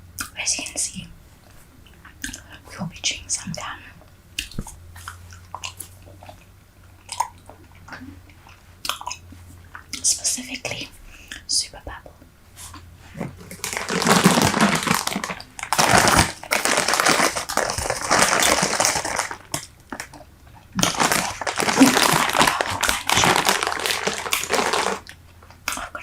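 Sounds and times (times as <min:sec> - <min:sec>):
gum packaging crinkling: 0:13.4 - 0:26.0.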